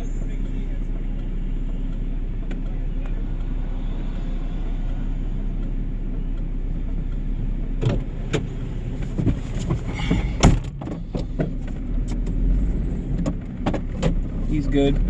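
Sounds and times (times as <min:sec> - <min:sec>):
vehicle engine idling: 0:00.0 - 0:15.0
sharp knocks and clunks: 0:07.8 - 0:12.2.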